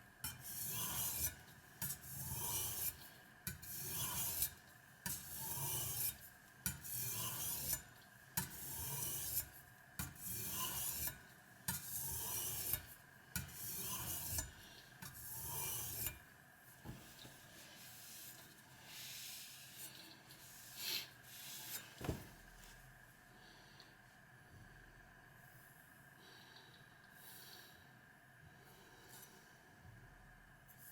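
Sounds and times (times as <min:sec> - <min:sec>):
knife scraping on sharpening stone: 0:00.3 - 0:07.8, 0:08.4 - 0:14.5, 0:15.1 - 0:16.2.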